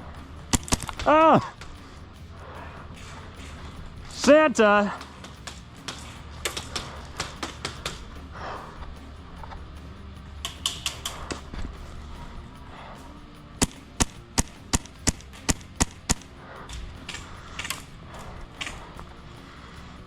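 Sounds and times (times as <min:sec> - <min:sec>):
faint clicks: 0:00.0 - 0:20.0
airsoft rifle shots: 0:13.6 - 0:16.2.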